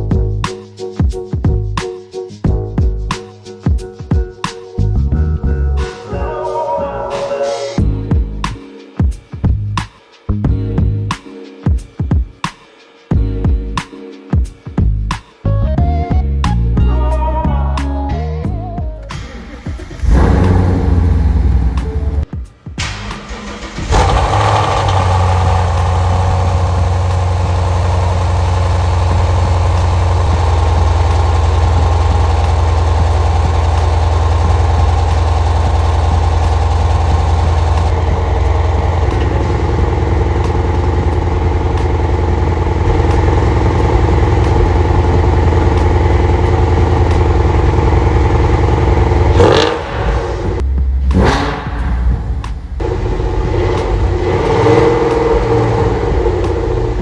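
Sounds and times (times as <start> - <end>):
car engine idling loudly: 19.6 - 22.2, 23.8 - 50.7, 51.4 - 57.0.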